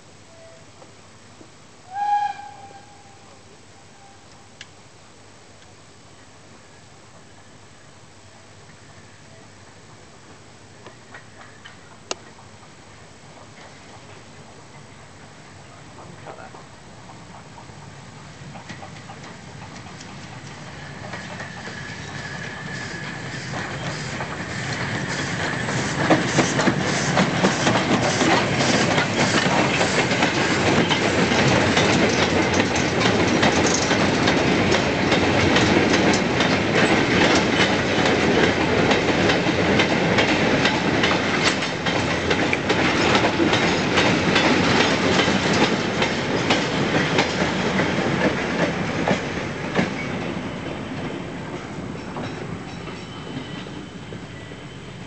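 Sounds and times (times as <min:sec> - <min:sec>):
train wheels clattering over rail joints: 0:16.5 - 0:53.8.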